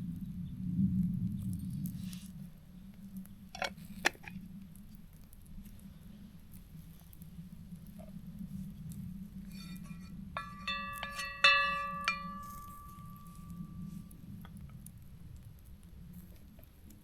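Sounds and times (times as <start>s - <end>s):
metal cookware clinking: 9.5s - 13.8s.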